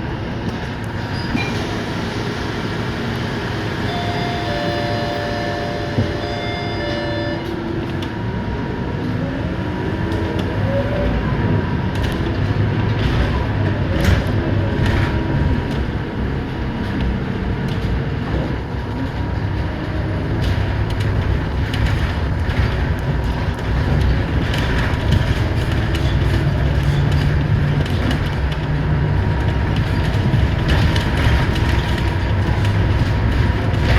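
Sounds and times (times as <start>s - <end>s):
bus diesel engine rumbling: 0.0s - 33.9s
steady tone: 3.8s - 7.6s.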